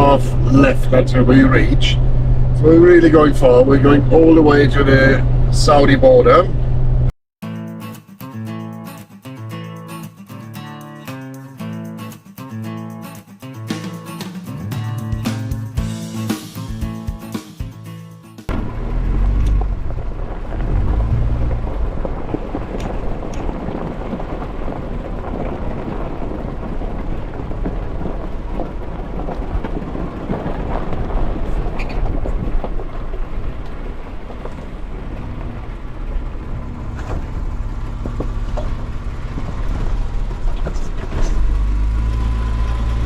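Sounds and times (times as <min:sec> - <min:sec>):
car driving rumble: 0:00.0 - 0:07.2, 0:18.5 - 0:43.0
road and tyre noise: 0:00.0 - 0:07.2, 0:18.5 - 0:43.0.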